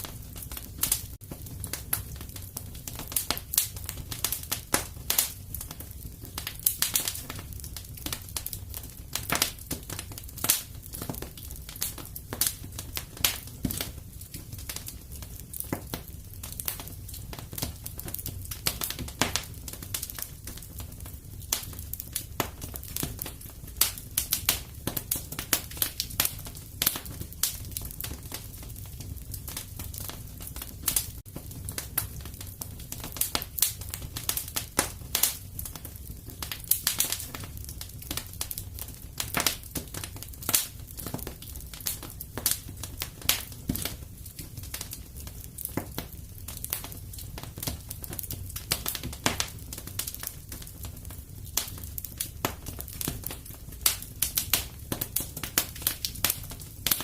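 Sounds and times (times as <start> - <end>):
fire crackling pops and snaps: 0.0 - 57.0
low rumble of burning fire: 0.0 - 57.0.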